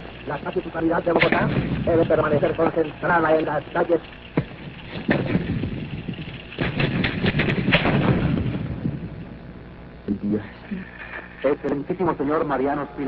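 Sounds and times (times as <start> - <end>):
sharp cracks: 0.0 - 10.0
rumbling noise: 0.0 - 13.0.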